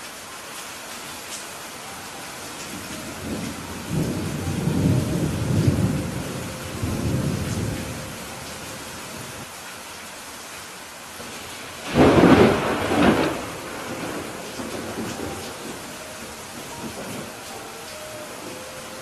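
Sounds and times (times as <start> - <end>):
heavy rain hissing: 0.0 - 19.0
thunder rumbling: 2.6 - 9.4, 11.2 - 19.0.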